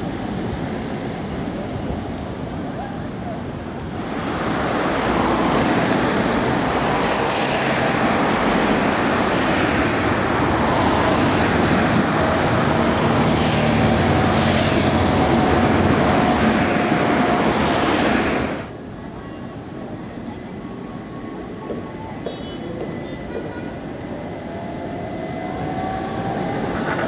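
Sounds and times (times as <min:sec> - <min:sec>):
tram wheels on rails: 0:00.0 - 0:27.0.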